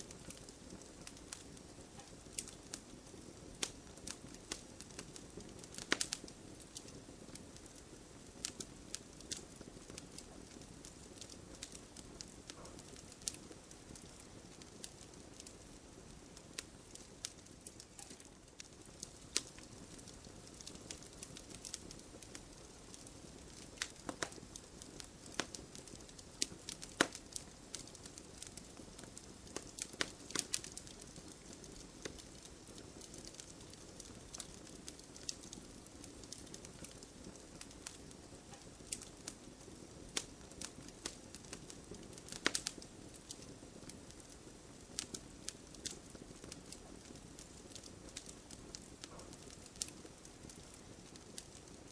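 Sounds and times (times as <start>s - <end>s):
wood fire crackling: 0.0s - 51.9s.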